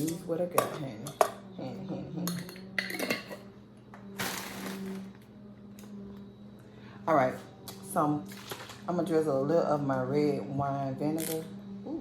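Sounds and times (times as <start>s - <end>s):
utensils clinking against dishes: 0.0s - 3.5s.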